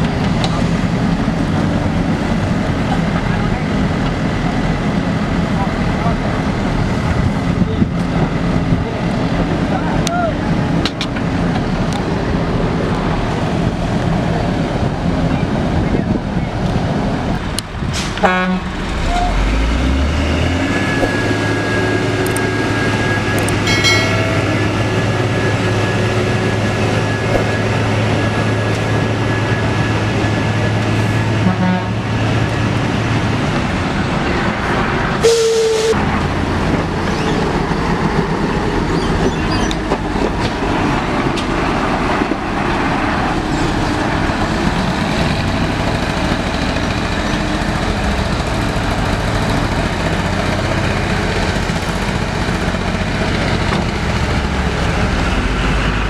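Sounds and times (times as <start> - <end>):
truck diesel engine droning: 0.0 - 56.0
horn blast: 31.4 - 32.1, 35.2 - 36.0.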